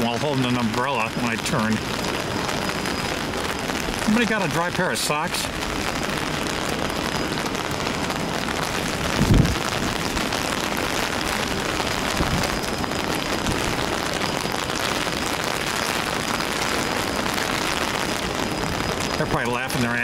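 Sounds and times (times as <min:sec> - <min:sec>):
heavy rain hissing: 0:00.0 - 0:20.0.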